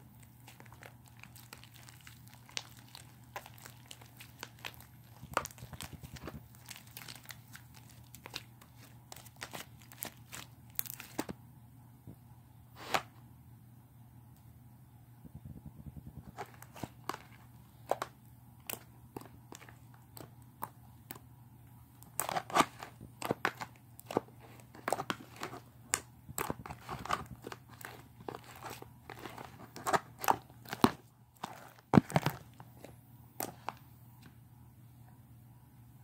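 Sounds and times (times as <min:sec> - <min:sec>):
slime crackling and popping: 0:00.2 - 0:11.2.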